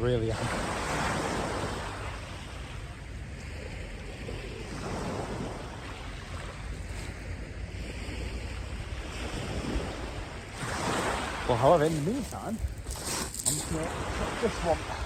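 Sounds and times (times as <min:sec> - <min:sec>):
sea waves washing onto beach: 0:00.0 - 0:15.0
wind buffeting microphone: 0:06.7 - 0:15.0.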